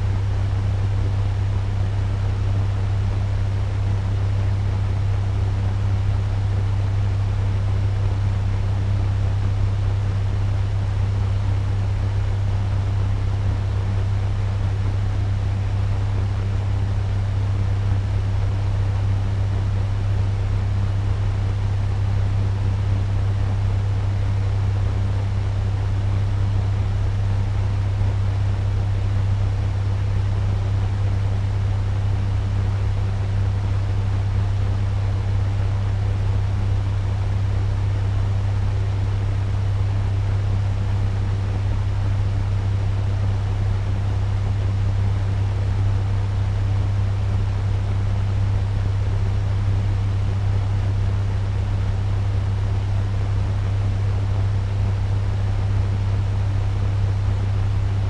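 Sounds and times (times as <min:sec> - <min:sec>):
fan humming with air rush: 0:00.0 - 0:58.0.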